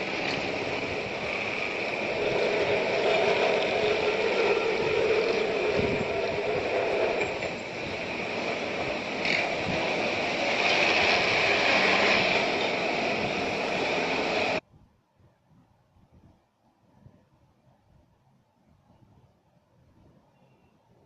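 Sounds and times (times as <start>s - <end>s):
rail vehicle rumble and rattle: 0.0s - 14.6s.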